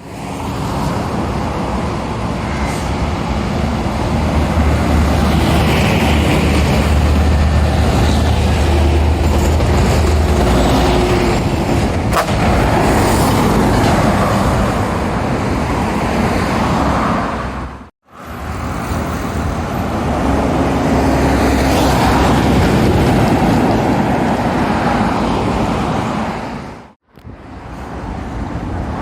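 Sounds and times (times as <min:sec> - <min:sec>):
heavy traffic passing on highway: 0:00.0 - 0:29.0.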